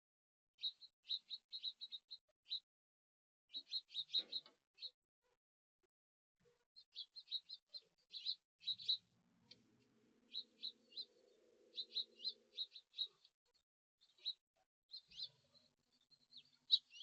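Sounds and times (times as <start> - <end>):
small birds chirping: 0.6 - 2.7, 3.5 - 5.0, 6.7 - 17.0.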